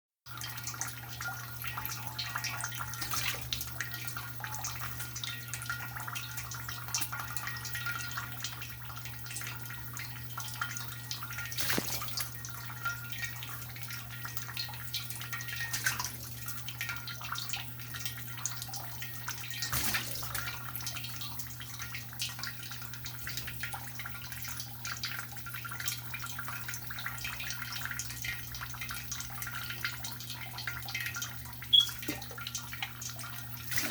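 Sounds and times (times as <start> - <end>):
water drips: 0.3 - 33.9
shower water running: 10.5 - 24.1, 31.0 - 33.9.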